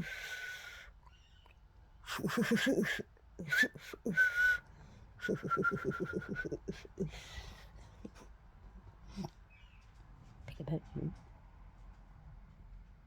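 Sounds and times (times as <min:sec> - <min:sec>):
parakeet chattering: 0:05.3 - 0:07.2.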